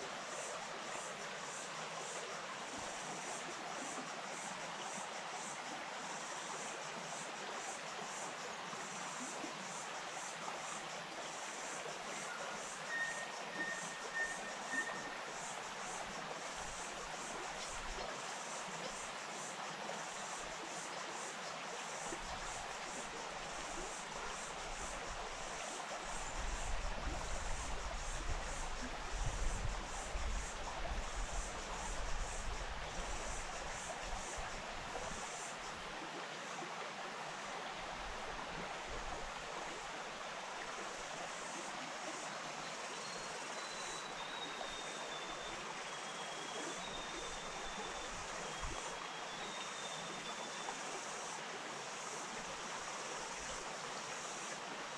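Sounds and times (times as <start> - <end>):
stream flowing: 0.0 - 54.9
faint thin high tone: 12.3 - 15.2.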